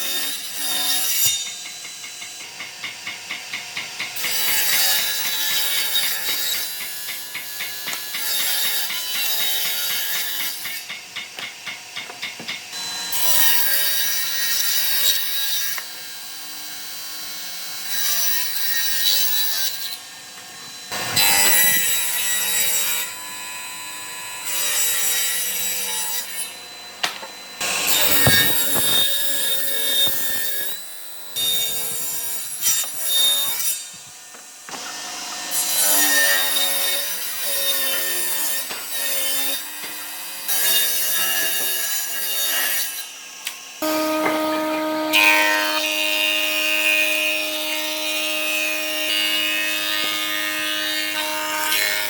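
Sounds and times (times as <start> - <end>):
tool rubbing wood: 27.6 - 30.7.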